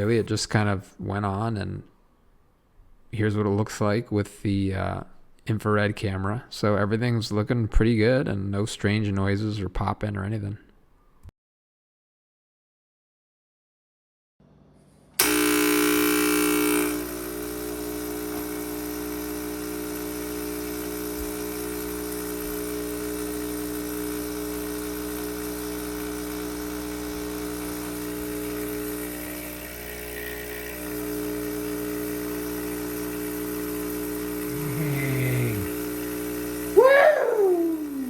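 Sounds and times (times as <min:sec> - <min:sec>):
espresso machine pump buzzing: 0:15.2 - 0:38.0.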